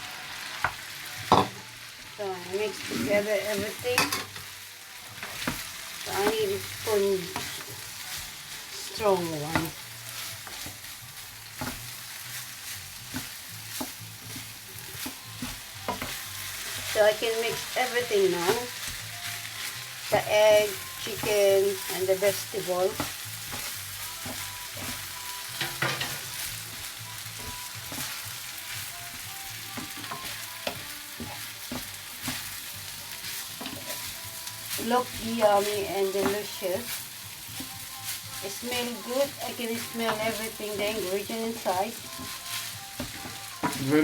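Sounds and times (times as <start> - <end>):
rice sizzling in a pan: 0.0 - 44.0
spoon knocking against pan: 0.6 - 1.6, 4.0 - 4.4.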